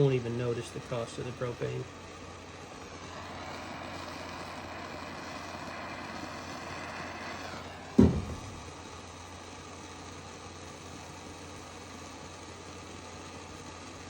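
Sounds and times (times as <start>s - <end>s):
propane torch hissing: 0.0s - 14.0s
loud thump: 8.0s - 8.8s.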